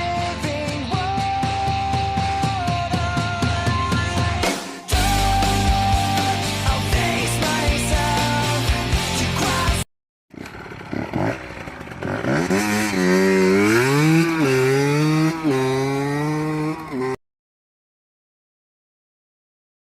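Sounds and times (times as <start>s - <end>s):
minibike engine revving: 10.3s - 17.2s.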